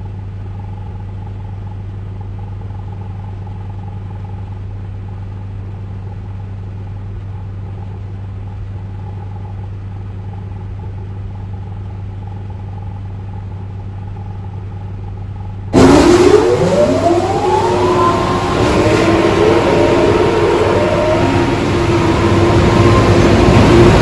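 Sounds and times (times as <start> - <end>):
car wash machinery humming: 15.7 - 24.0
motor spinning up with whine: 15.8 - 24.0.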